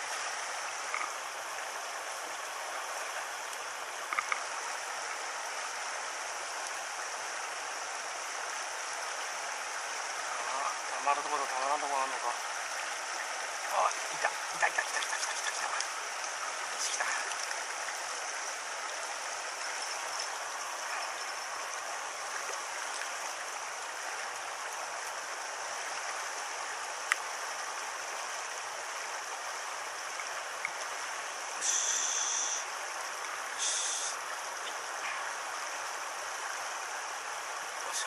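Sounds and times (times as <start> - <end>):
stream rushing over rocks: 0.0 - 38.0
bright hiss bursts: 31.6 - 32.6, 33.6 - 34.2.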